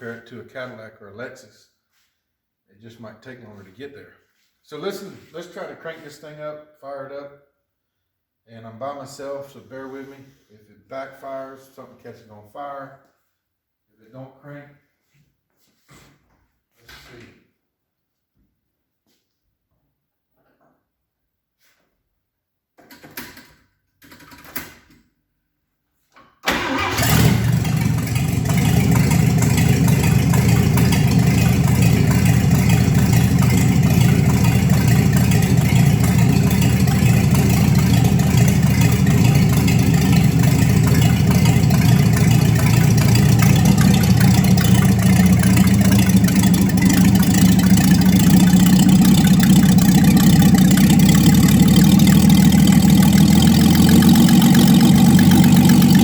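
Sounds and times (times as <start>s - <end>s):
pickup truck engine running: 26.7s - 56.0s.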